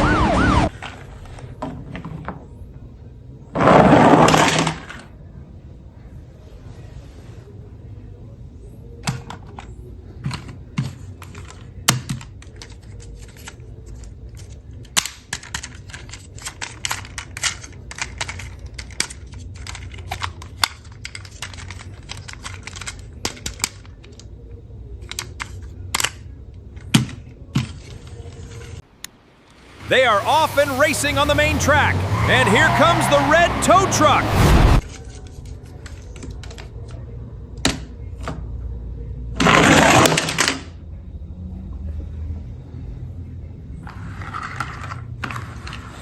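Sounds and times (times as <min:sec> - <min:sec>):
plastic toy vehicles clicking: 0:00.7 - 0:02.9, 0:03.5 - 0:05.2, 0:08.9 - 0:28.9, 0:34.8 - 0:38.4, 0:39.4 - 0:40.8, 0:43.8 - 0:46.0.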